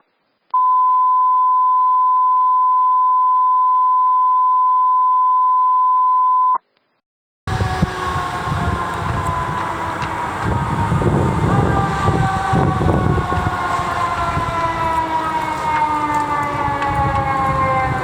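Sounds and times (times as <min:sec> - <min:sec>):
electronic beep tone: 0:00.6 - 0:06.6
siren wail: 0:07.5 - 0:18.0
traffic noise: 0:07.5 - 0:18.0.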